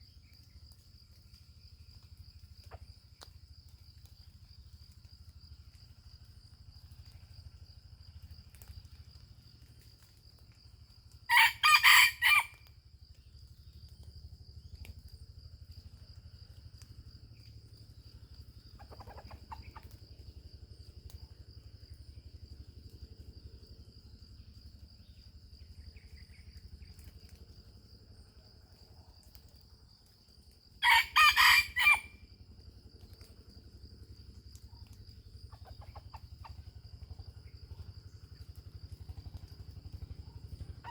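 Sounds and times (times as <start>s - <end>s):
high insect drone: 0.0s - 40.9s
distant rooster crowing: 11.3s - 12.6s, 30.8s - 32.2s
rooster crowing: 11.3s - 12.6s, 30.8s - 32.2s.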